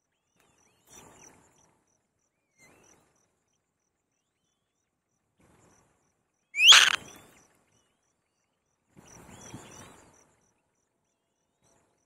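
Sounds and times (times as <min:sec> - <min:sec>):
crickets chirping: 0:06.6 - 0:07.0
loud rising bird squeal: 0:06.6 - 0:07.0
faint chick chirps: 0:06.6 - 0:07.1.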